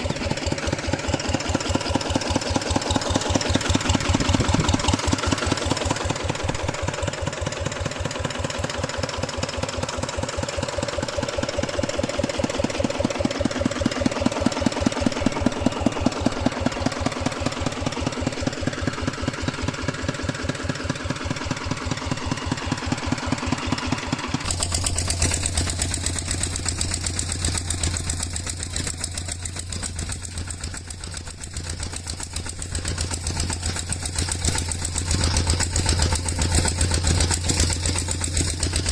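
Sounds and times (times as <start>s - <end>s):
tractor engine chugging: 0.0s - 38.9s
deeper engine humming: 11.5s - 38.9s.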